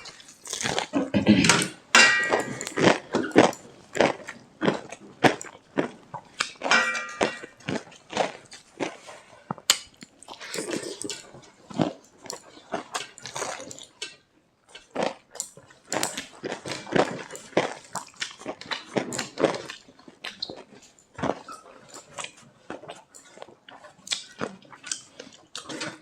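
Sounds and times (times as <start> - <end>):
crunching fried food: 0.0 - 1.0, 7.5 - 26.0
chewing food: 0.0 - 26.0.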